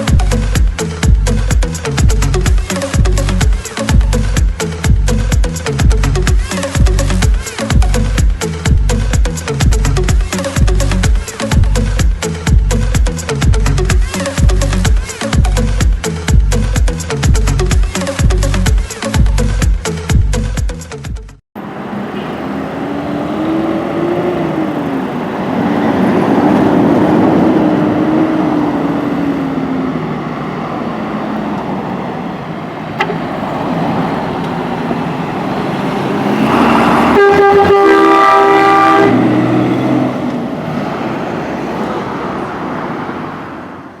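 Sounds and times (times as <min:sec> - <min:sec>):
road noise: 0:00.0 - 0:44.0
truck engine: 0:00.0 - 0:44.0
air horn blast: 0:22.0 - 0:22.7, 0:36.1 - 0:40.2.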